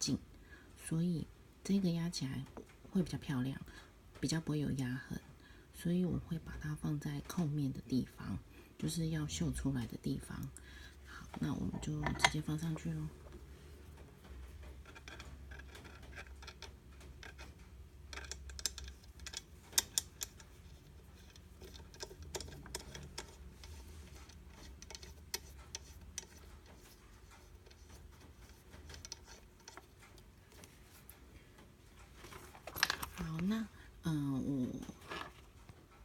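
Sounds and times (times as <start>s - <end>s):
small metal clicks and taps: 13.9s - 33.4s.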